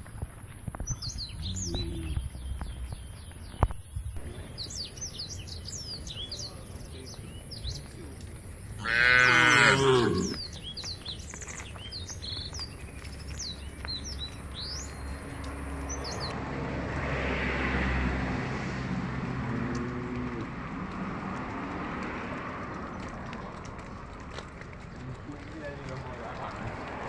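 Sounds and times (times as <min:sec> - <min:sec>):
small birds chirping: 0:00.5 - 0:16.4
faint low call: 0:01.4 - 0:02.8.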